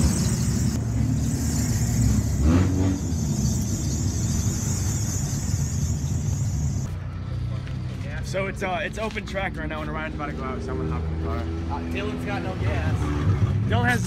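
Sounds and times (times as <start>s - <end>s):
car engine idling: 0.0s - 6.9s.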